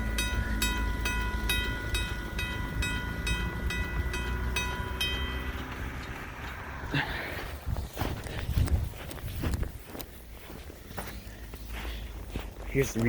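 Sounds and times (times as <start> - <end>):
railroad crossing bell ringing: 0.0 - 7.0
low rumble: 0.0 - 9.8.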